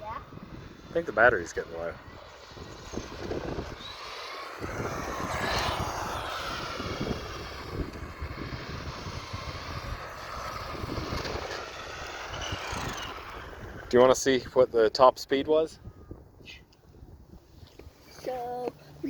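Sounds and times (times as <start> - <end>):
electric toy car motor whining: 2.4 - 13.9.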